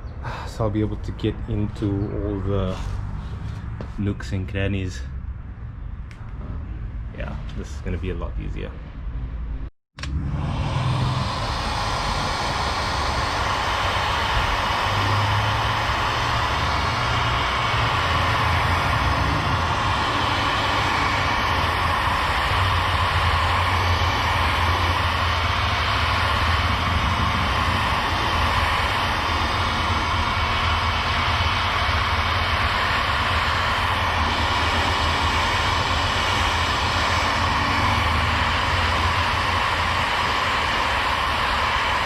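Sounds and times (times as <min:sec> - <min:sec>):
heat gun fan whirring: 0:00.3 - 0:04.2, 0:10.0 - 0:42.0.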